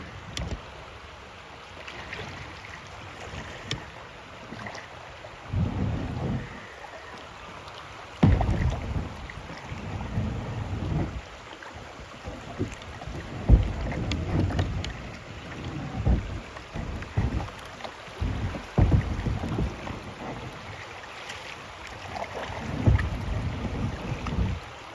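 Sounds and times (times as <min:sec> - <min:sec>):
river hiss: 0:00.0 - 0:24.9
low rumbles: 0:08.2 - 0:11.4, 0:12.1 - 0:20.6, 0:22.6 - 0:24.7.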